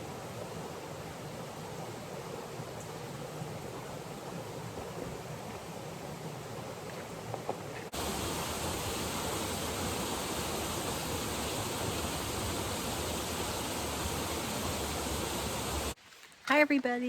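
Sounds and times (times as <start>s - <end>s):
rush of falling water: 7.9s - 16.0s.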